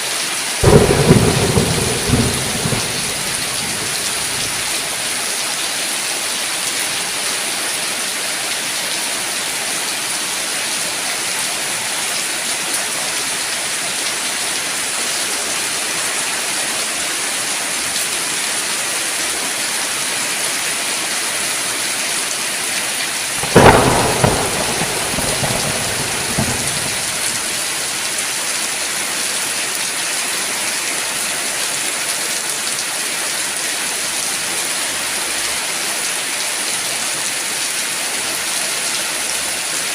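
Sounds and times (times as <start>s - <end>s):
steady rain falling: 0.0s - 39.9s
thunderclap: 0.6s - 5.0s, 23.4s - 27.9s.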